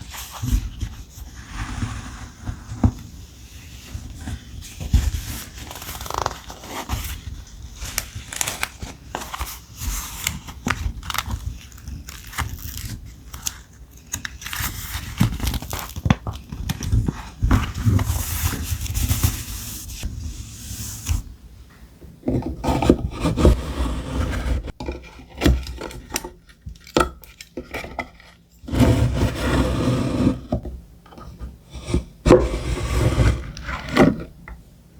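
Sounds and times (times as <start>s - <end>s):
dense paper rubbing: 3.6s - 13.6s, 17.0s - 21.2s
thick paper rustling: 3.9s - 21.1s.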